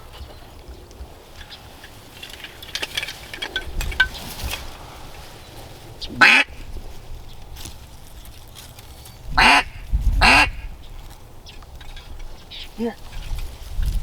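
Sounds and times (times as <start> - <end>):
duck quacks: 6.1 - 6.6, 9.4 - 10.6.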